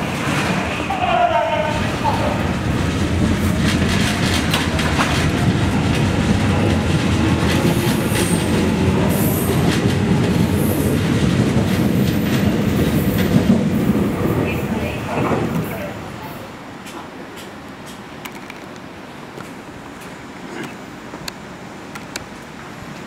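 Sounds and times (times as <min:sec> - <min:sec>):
train rumbling past: 0:00.0 - 0:23.0
wheels clattering over rail joints: 0:01.7 - 0:15.7.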